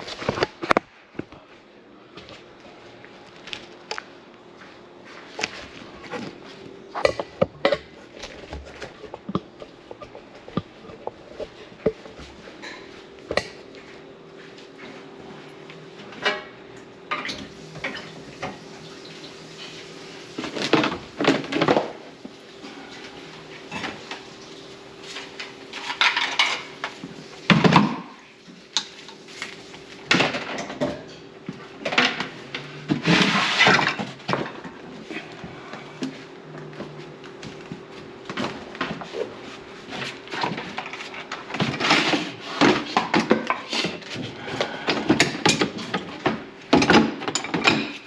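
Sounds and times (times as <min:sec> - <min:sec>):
steady low hum: 0:00.0 - 0:48.0
dishes and cutlery clattering: 0:25.8 - 0:26.7, 0:46.7 - 0:48.0.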